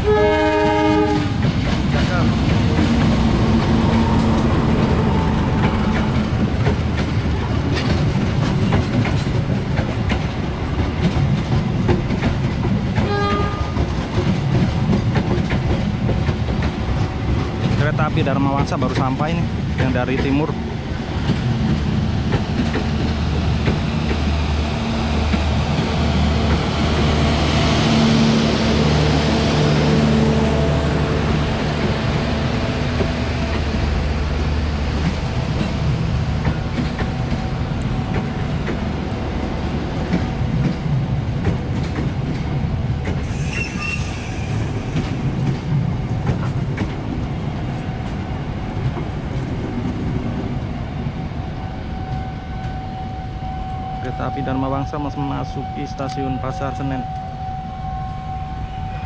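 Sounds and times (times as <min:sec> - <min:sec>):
train wheels rumbling on rail: 0:00.0 - 0:59.0
wheel squeal: 0:43.2 - 0:45.0.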